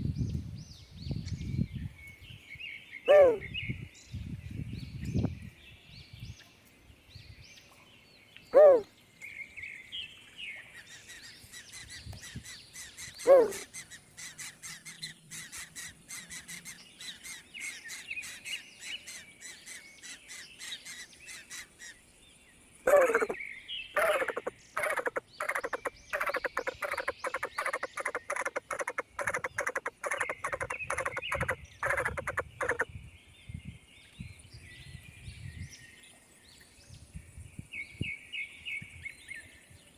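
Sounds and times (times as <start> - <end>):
birds high chirping: 1.0 - 6.2, 8.4 - 9.8, 10.6 - 22.0, 22.9 - 36.0
rapid repeated bird calls: 3.0 - 3.6, 8.5 - 8.9, 10.7 - 22.0, 22.8 - 32.9
loud bird calls: 3.0 - 3.7, 8.5 - 8.9, 10.9 - 22.0, 22.8 - 32.9.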